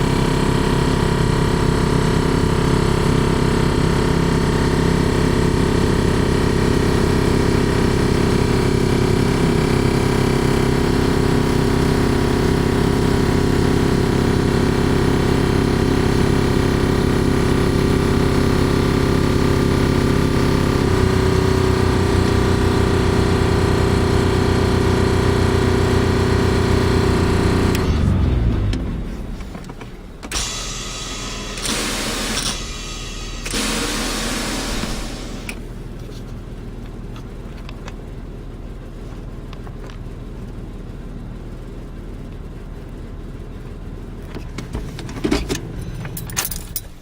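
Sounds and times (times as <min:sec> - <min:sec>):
truck engine running: 0:00.0 - 0:47.0.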